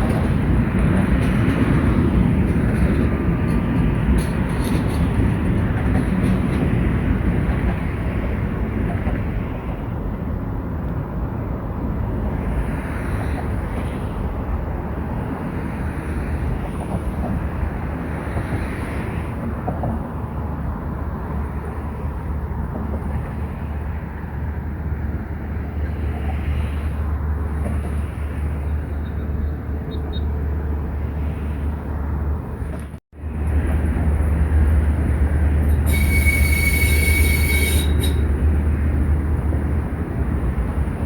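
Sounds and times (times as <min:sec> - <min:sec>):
rail vehicle rumbling: 0:00.0 - 0:41.0
high squeal with hiss: 0:35.9 - 0:38.2.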